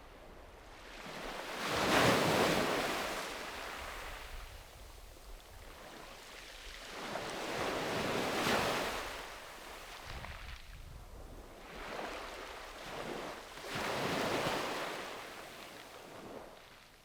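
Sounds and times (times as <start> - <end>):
wind on microphone: 10.0 - 14.4.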